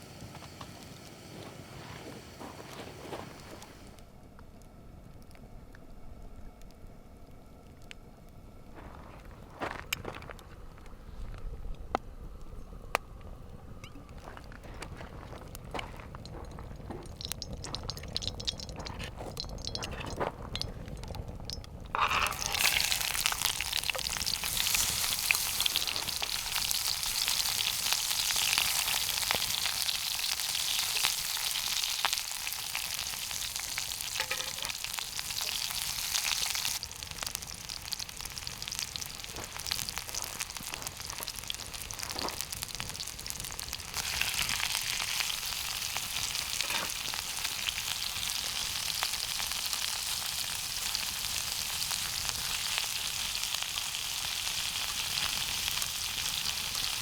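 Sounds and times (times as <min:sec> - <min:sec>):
food sizzling in a pan: 0:21.9 - 0:57.0.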